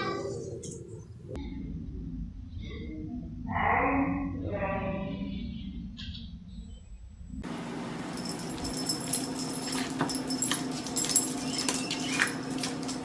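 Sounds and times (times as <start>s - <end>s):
steady low hum: 4.3s - 11.6s.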